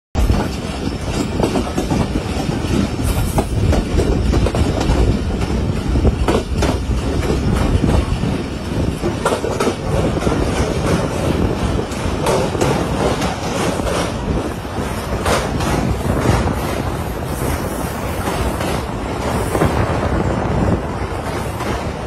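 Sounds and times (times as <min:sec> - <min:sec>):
wheels clicking and clacking: 0:00.2 - 0:19.6
train wheels rumbling on rails: 0:00.2 - 0:22.0.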